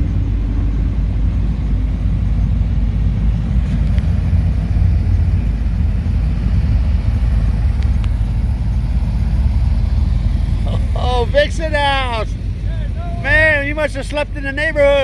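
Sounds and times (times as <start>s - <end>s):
car engine rumbling past: 0.0s - 15.0s
faint clicks: 3.7s - 4.1s, 7.7s - 8.3s.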